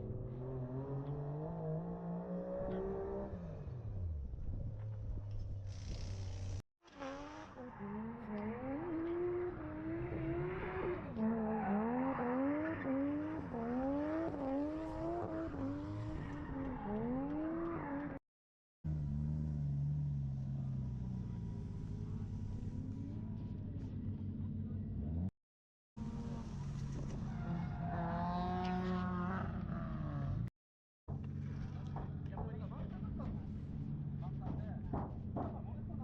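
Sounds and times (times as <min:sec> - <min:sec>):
car engine revving: 0:05.8 - 0:18.2, 0:26.0 - 0:30.5.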